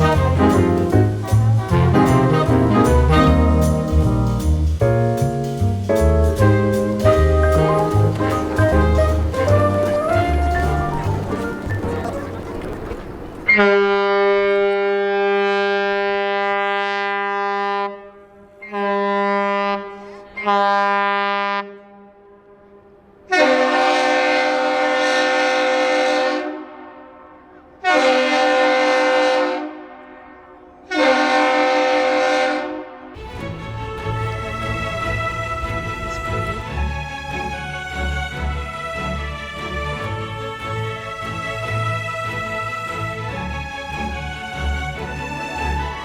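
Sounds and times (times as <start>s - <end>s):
deep ship horn blasts: 0.0s - 4.4s, 6.4s - 22.7s, 23.3s - 39.2s.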